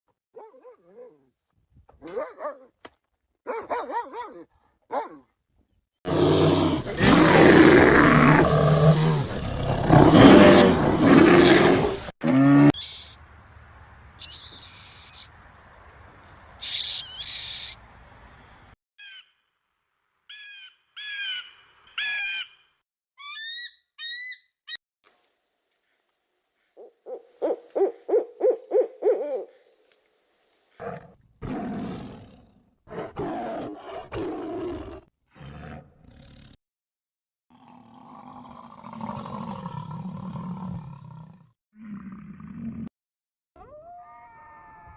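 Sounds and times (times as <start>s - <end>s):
animal chirping calls: 16.6s - 17.8s, 26.8s - 29.7s.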